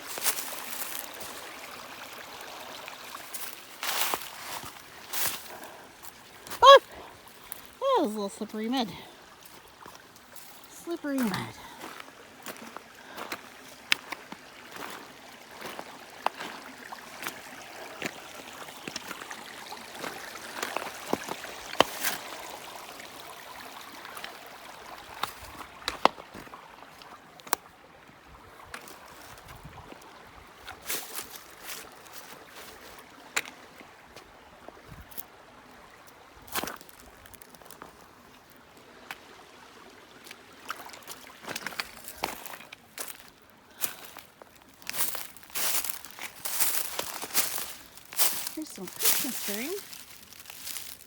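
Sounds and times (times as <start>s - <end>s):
crunching footsteps: 0.0s - 1.4s, 3.3s - 8.0s, 40.8s - 51.0s
creek running: 0.0s - 51.0s.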